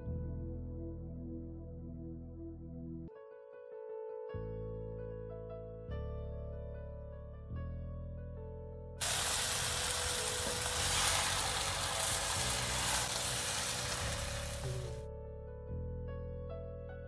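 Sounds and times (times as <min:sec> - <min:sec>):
soft background music: 0:00.0 - 0:17.0
food sizzling in a wok: 0:09.0 - 0:15.0.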